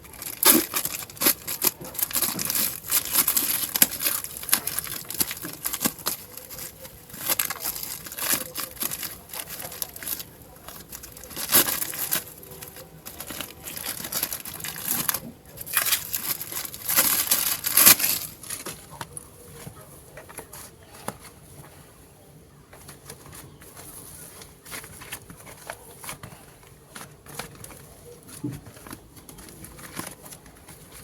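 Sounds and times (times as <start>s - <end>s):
packaging crinkling and rustling: 0.0s - 21.8s, 22.7s - 31.0s
clay clicks and squishes: 0.0s - 22.0s.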